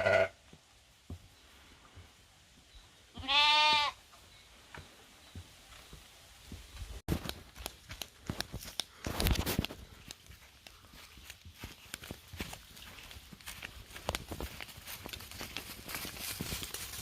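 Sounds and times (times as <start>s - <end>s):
footsteps on hard ground: 4.8s - 17.0s
scuffling: 5.4s - 17.0s.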